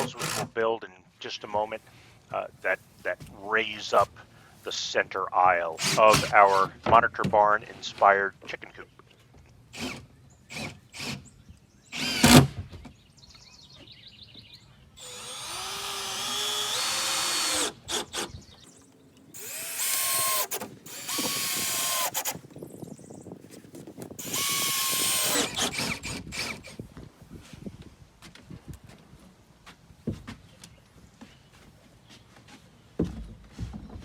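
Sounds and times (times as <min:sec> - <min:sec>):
power drill driving screws: 0:00.0 - 0:00.5, 0:05.8 - 0:06.7, 0:09.7 - 0:11.3, 0:11.9 - 0:12.6, 0:15.0 - 0:18.4, 0:19.4 - 0:22.4, 0:24.2 - 0:26.8.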